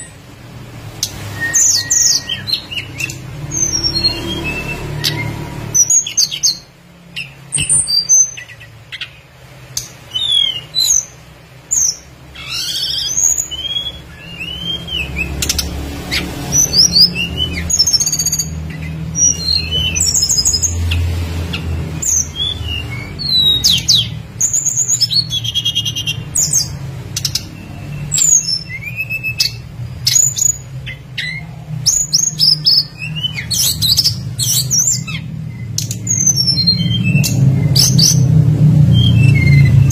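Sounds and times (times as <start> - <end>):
songbird chirping and whistling: 1.0 - 9.2, 9.8 - 39.9.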